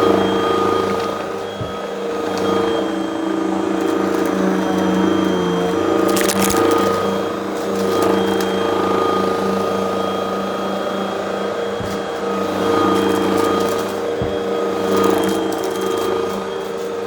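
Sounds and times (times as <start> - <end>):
debris crackling in vacuum: 6.1 - 7.0.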